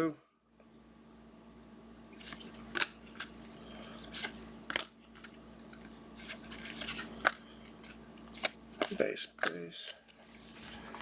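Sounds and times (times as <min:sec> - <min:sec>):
cards rustling: 0:02.1 - 0:11.0
trading cards snapping: 0:02.2 - 0:03.4, 0:04.1 - 0:07.4, 0:08.3 - 0:10.1.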